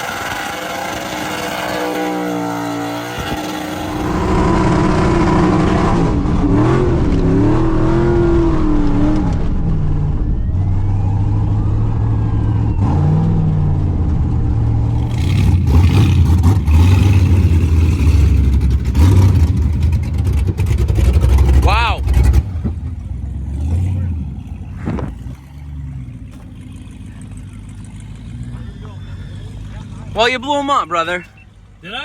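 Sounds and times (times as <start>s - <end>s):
truck engine at high revs: 0.0s - 32.0s
sharp crackling: 3.3s - 7.5s.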